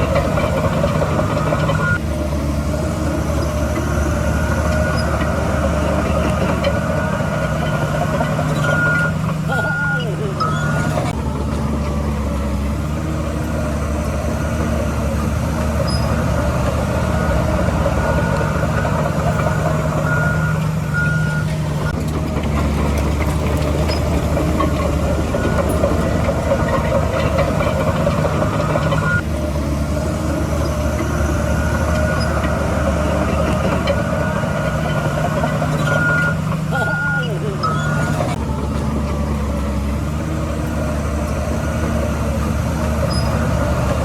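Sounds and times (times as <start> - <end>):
heavy diesel machinery running: 0.0 - 44.0
back-up alarm beeps: 4.1 - 11.2, 15.9 - 21.9, 24.6 - 29.2, 31.3 - 38.4.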